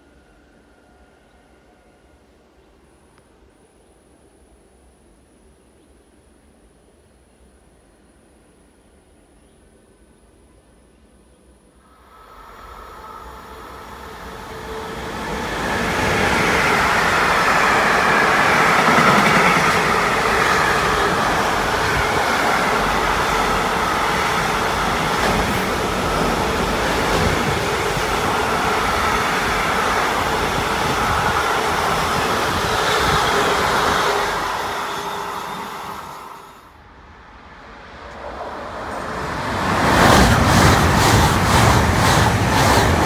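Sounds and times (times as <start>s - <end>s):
freight locomotive passing: 11.8s - 43.0s.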